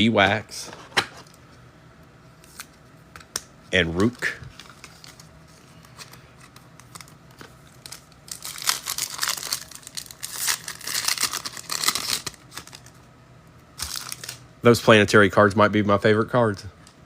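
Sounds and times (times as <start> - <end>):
foil wrapper crinkling and tearing: 3.9 - 13.0, 13.8 - 14.4.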